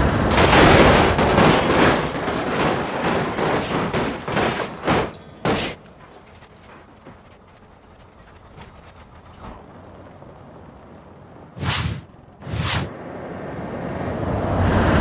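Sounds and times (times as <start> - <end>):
crashing clattering impacts: 0.3 - 9.8.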